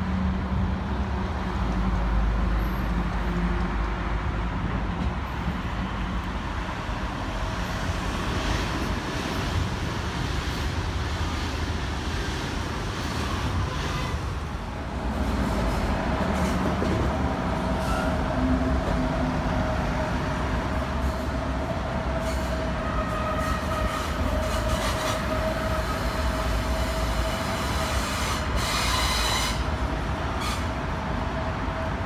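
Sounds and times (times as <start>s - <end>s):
wheels squealing on rails: 17.6s - 18.6s, 20.8s - 30.9s.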